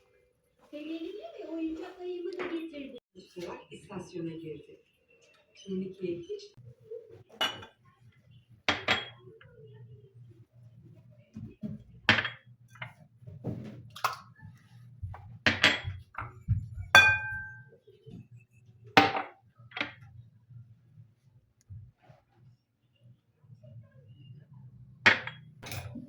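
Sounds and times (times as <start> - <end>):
dishes clinking and knocking: 7.2 - 8.1, 8.7 - 9.5, 11.4 - 18.4, 19.0 - 20.1, 25.1 - 26.0.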